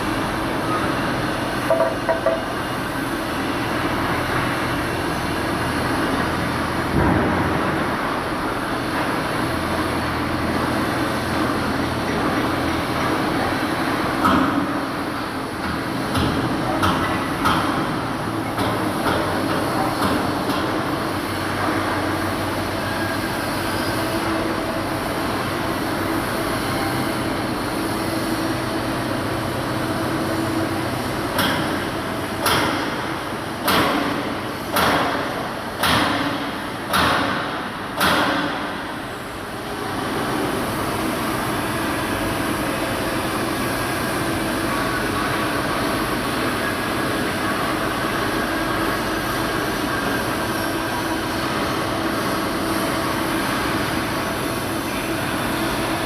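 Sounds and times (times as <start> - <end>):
machinery drone with low hum: 0.0 - 56.0
metal-on-metal strikes: 1.7 - 2.6.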